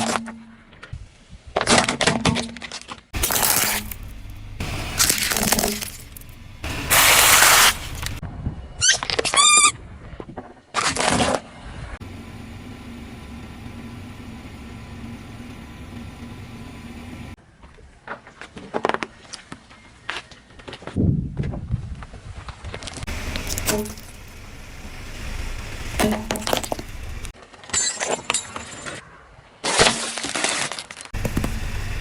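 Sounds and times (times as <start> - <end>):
tyres crunching objects: 1.6 - 8.2, 22.9 - 28.5
car engine humming: 3.2 - 8.2, 12.0 - 17.4, 23.1 - 27.3, 31.2 - 32.0
brief high squeal: 8.8 - 9.8.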